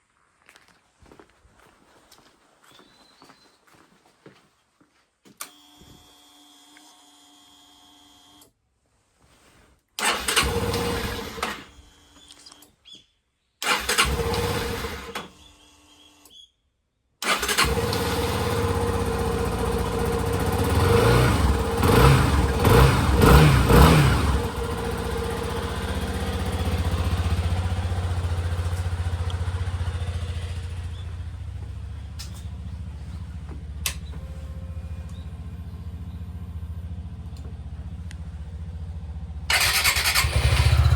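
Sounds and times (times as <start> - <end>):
electric starter cranking: 10.0 - 12.2, 13.6 - 16.0, 17.2 - 30.8, 39.5 - 40.9
motorcycle engine idling: 17.5 - 40.9.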